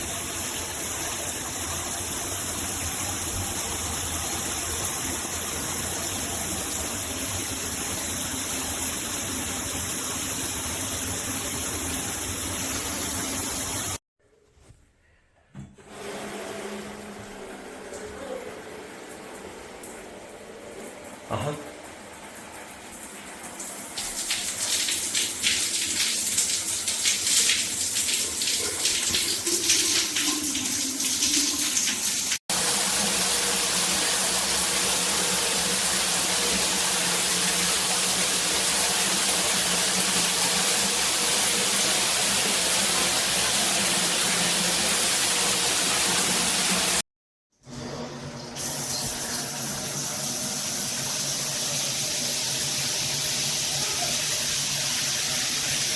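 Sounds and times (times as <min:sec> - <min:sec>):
shower water spraying: 0:23.2 - 0:47.0, 0:48.6 - 0:55.9.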